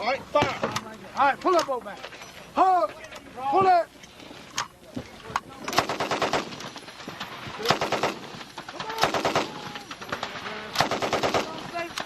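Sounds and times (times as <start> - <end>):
machine gun firing bursts: 5.7 - 12.0.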